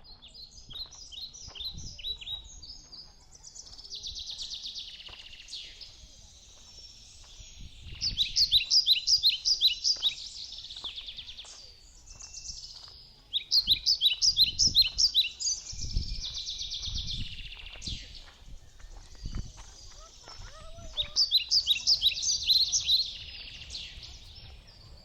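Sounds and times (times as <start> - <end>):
songbird singing: 0.0 - 25.0.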